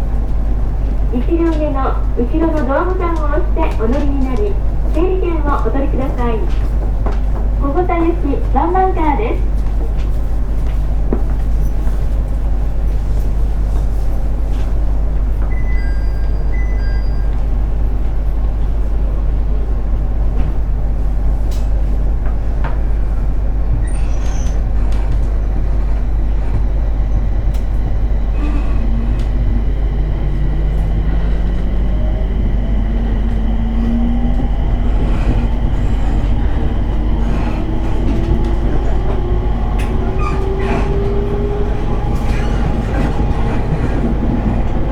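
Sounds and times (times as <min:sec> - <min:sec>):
train cabin rumble and hum: 0:00.0 - 0:44.9
traction motor whine rising: 0:27.4 - 0:44.9.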